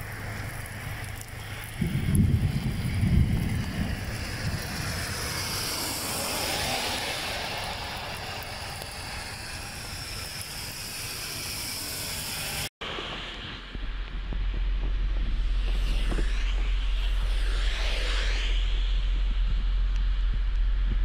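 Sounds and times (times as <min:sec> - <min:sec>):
heavy rain on wet road: 0:00.0 - 0:14.6.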